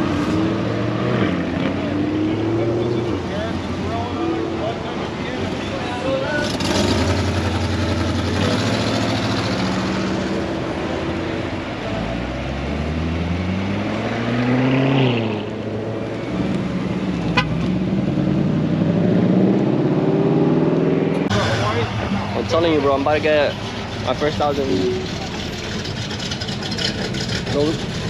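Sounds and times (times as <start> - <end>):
car engine accelerating: 6.2 - 28.0.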